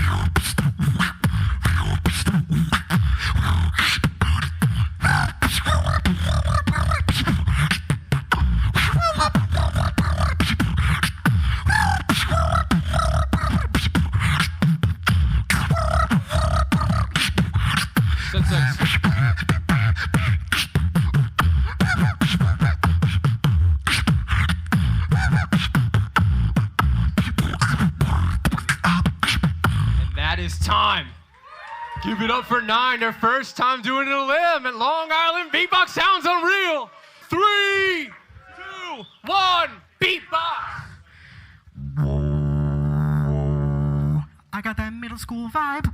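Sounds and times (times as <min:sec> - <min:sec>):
beatboxing: 0:00.0 - 0:31.1, 0:40.7 - 0:45.9.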